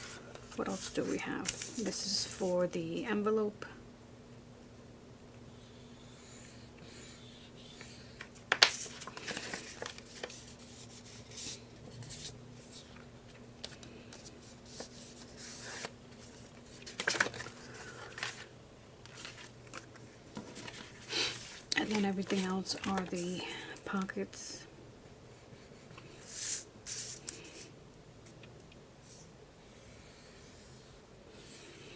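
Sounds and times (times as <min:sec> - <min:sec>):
paper rustling and shuffling: 0:00.0 - 0:02.5, 0:08.2 - 0:24.1.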